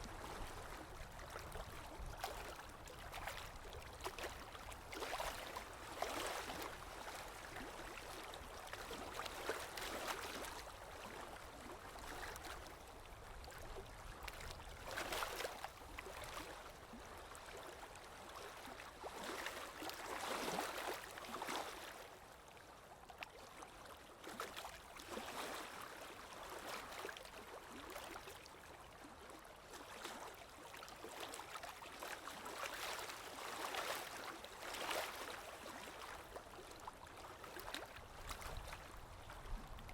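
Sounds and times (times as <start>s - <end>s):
sea waves breaking on shore: 0.0s - 12.7s.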